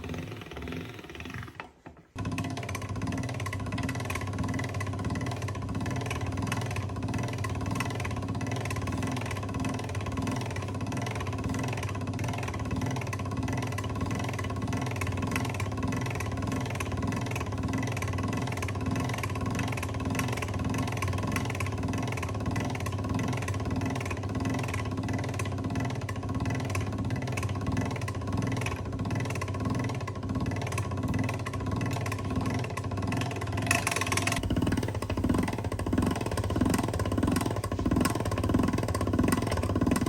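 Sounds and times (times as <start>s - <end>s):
noodle machine motor humming: 0.0s - 2.4s, 33.8s - 40.0s.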